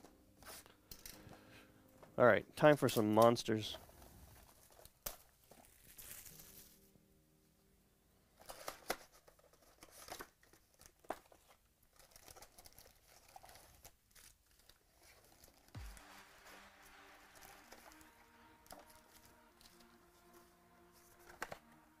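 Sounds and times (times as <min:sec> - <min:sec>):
faint background music: 0:00.0 - 0:10.2, 0:15.8 - 0:22.0
card wrappers crinkling: 0:03.9 - 0:06.9, 0:08.4 - 0:22.0.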